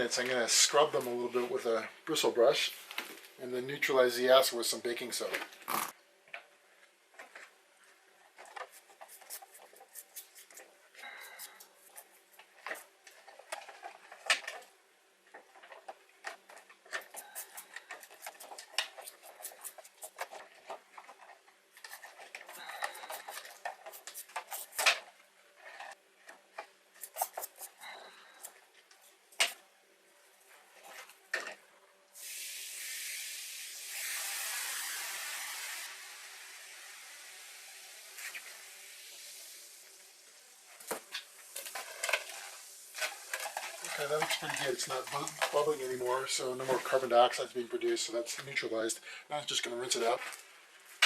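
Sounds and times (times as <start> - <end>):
brush scrubbing metal parts: 8.5 - 14.3, 15.4 - 25.0, 27.0 - 29.6, 43.0 - 47.0
steady hiss: 17.0 - 20.3, 21.8 - 25.0, 32.1 - 51.0.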